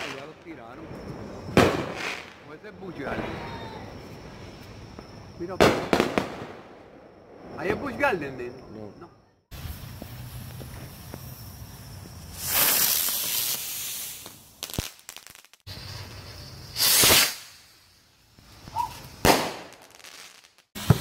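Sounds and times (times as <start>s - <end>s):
fireworks sharp cracks: 0.0s - 2.5s, 5.0s - 7.1s, 12.1s - 17.7s, 18.6s - 21.0s
fireworks hissing spark bursts: 9.5s - 21.0s.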